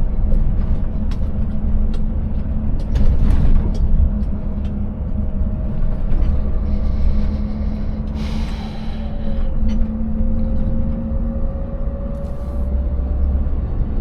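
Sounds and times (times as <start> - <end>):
truck knocks and rattles: 0.0 - 6.6
truck engine droning: 0.0 - 14.0.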